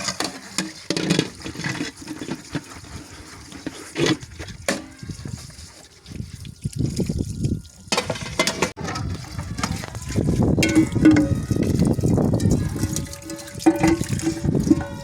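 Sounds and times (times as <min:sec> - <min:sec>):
water pouring and splashing: 0:00.0 - 0:15.0
dishware clinking: 0:13.2 - 0:15.0.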